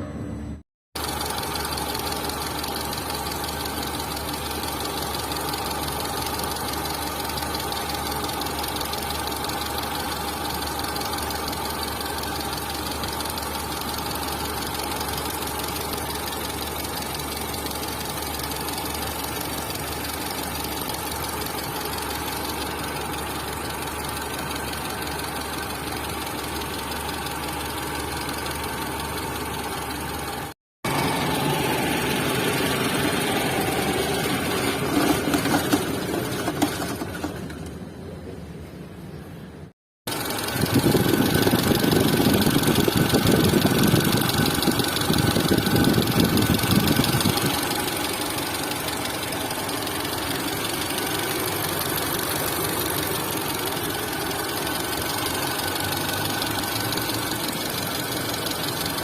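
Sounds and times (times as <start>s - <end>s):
car engine idling with knocking tick: 1.0s - 37.8s, 40.1s - 59.0s.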